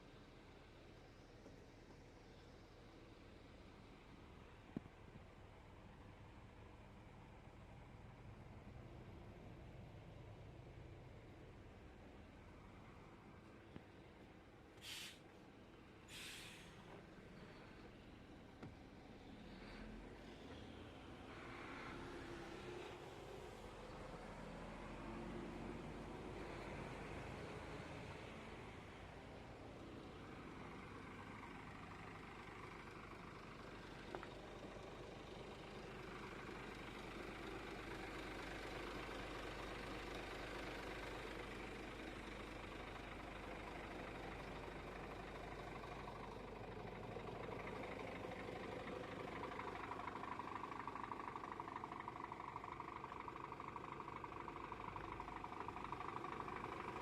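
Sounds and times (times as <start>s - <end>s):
truck engine running: 28.1s - 57.0s.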